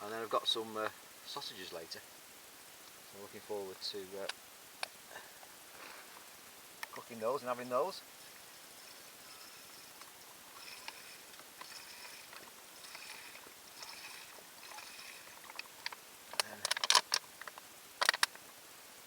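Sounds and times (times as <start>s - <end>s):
metallic clicks and clatter of camp stove: 9.9s - 18.4s.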